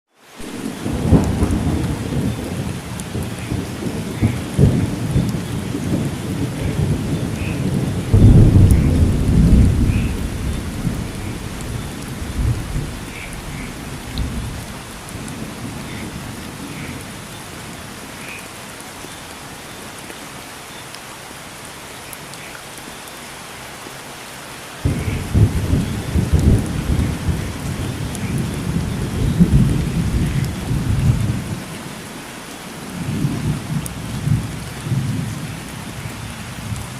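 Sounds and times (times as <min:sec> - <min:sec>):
heavy rain: 0:00.1 - 0:36.9
rolling thunder: 0:00.4 - 0:17.3, 0:24.8 - 0:31.7.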